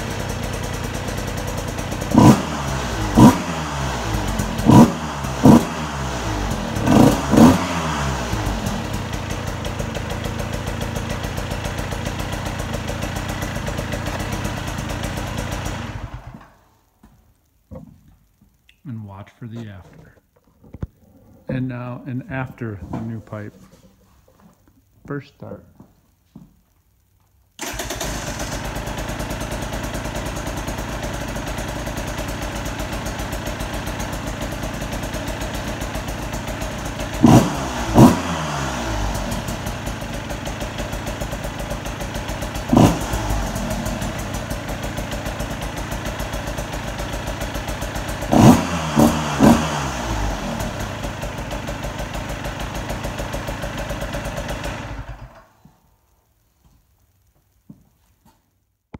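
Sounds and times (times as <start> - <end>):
dirt bike engine idling and revving: 0.0 - 16.5, 27.6 - 55.4.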